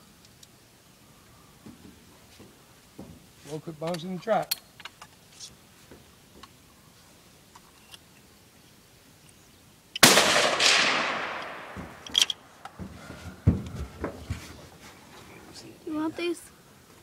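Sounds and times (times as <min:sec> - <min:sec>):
rifle shot with rolling echo: 0:10.0 - 0:12.1.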